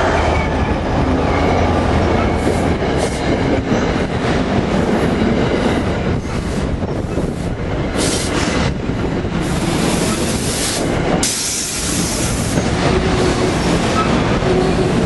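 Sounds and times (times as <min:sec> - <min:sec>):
train rumbling past: 0:00.0 - 0:15.0
loud hissing: 0:09.4 - 0:12.6.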